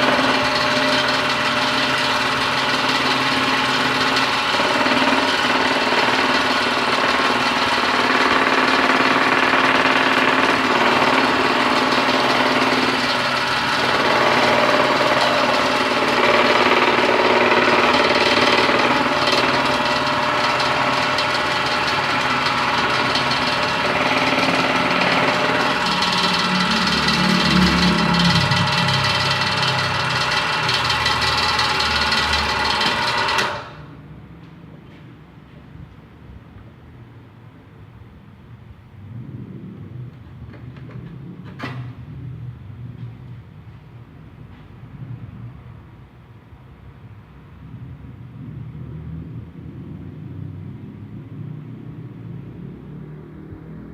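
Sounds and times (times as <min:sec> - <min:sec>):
jigsaw mechanical chatter: 0:00.0 - 0:33.8.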